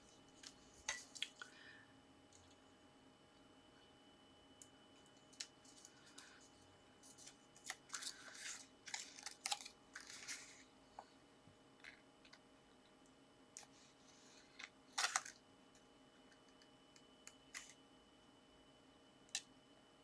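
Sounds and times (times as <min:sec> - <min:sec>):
cardstock rustling and crinkling: 0:05.0 - 0:10.7, 0:14.5 - 0:15.4.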